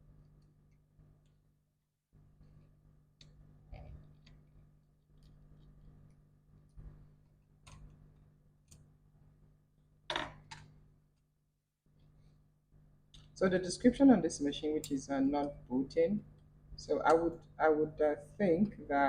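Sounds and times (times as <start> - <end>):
low steady hum: 12.0 - 19.0.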